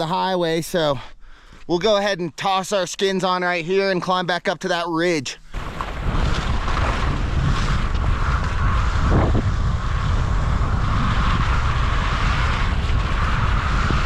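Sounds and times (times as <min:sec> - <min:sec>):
wind buffeting microphone: 0:05.6 - 0:14.0.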